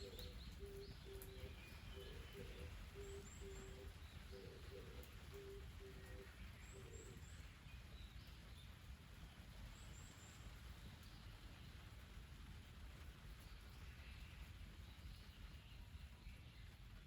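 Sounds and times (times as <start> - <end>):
bird hooting: 0.0 - 7.0.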